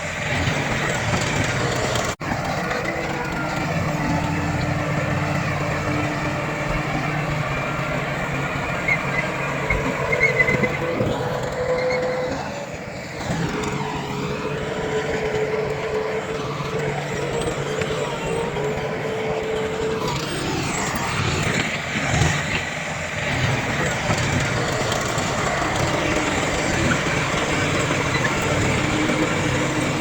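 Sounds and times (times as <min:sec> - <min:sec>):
heavy machinery running: 0:00.0 - 0:30.0.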